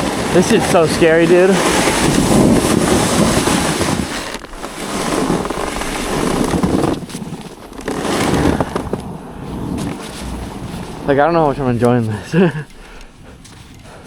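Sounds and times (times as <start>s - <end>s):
sled sliding over snow: 0.0s - 14.0s
wind on microphone: 0.0s - 14.0s.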